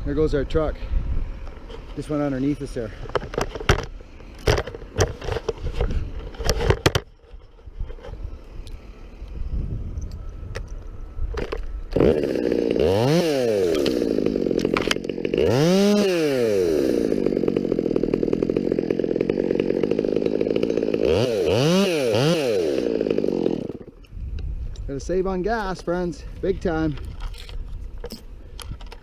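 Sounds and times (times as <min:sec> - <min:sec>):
chainsaw revving: 0:11.4 - 0:24.0.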